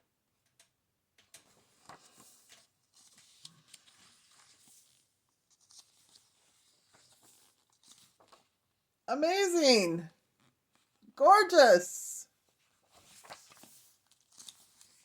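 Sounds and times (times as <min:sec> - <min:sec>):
paper pages rustling and turning: 0:01.4 - 0:08.6, 0:12.5 - 0:15.0.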